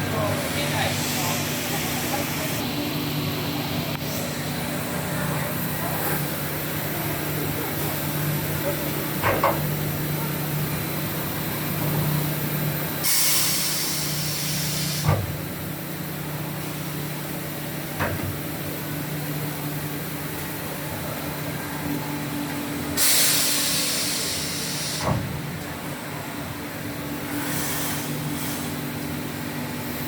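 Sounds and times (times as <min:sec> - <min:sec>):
compressed air hiss: 0:13.0 - 0:15.1, 0:23.0 - 0:25.1, 0:27.3 - 0:28.8.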